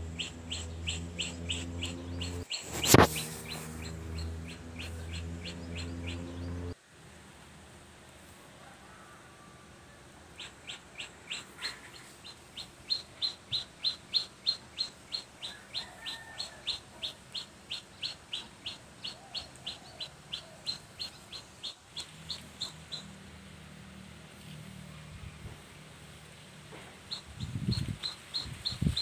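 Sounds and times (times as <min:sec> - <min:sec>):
bird chirping: 0:00.0 - 0:06.8, 0:10.4 - 0:23.2, 0:26.9 - 0:29.0.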